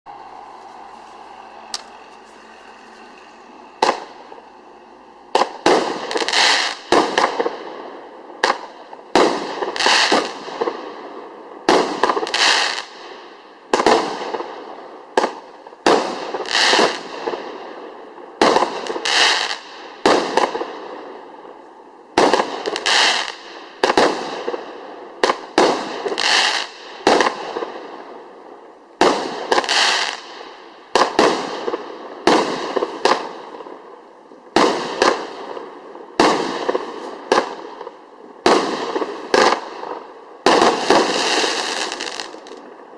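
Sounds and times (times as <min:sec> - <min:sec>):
cake firework shots bursting: 0:08.4 - 0:10.8.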